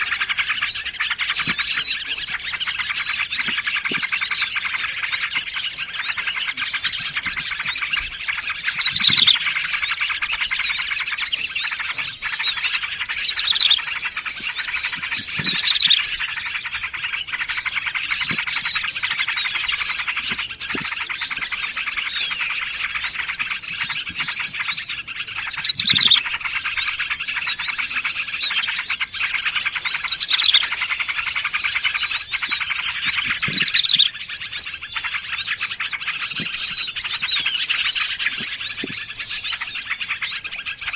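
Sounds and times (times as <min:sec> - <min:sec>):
falling bird whistles: 0:00.0 - 0:40.9
rapid high bird trilling: 0:00.0 - 0:40.9
songbirds chirping: 0:00.0 - 0:40.9.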